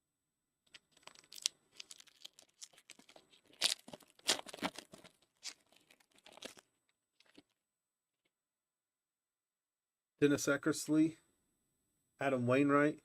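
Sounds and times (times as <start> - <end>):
wrapper tearing and crinkling: 0.7 - 7.5.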